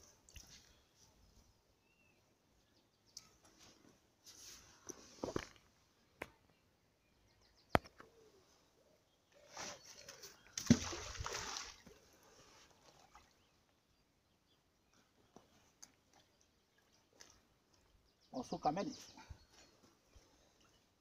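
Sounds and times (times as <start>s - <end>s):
magnet splashing into river: 10.6s - 11.9s.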